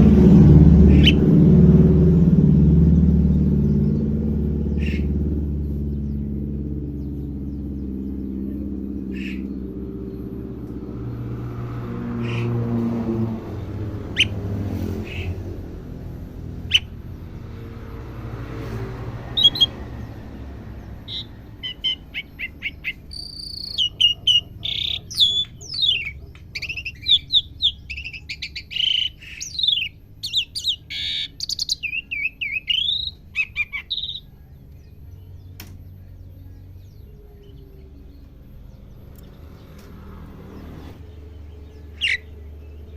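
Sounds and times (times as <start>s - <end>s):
low rumble: 0.0s - 28.0s
bird chirps and whistles: 0.9s - 1.2s, 21.1s - 34.3s.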